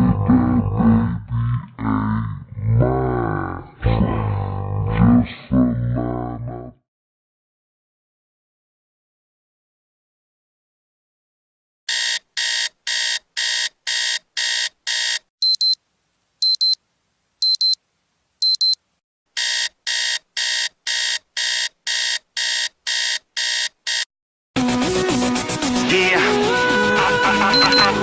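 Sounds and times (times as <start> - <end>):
alarm clock beeping: 11.9 - 15.8, 16.4 - 16.8, 17.4 - 17.8, 18.4 - 18.8, 19.4 - 24.1, 27.6 - 28.0.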